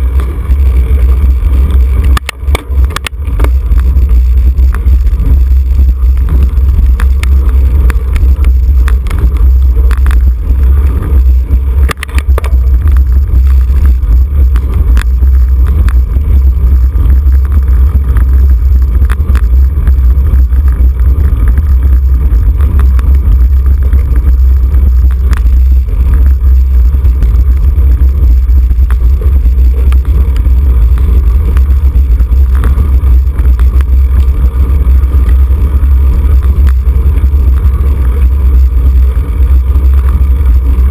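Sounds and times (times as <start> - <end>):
wind buffeting microphone: 0.0 - 40.9
sharp clicks: 2.0 - 3.9.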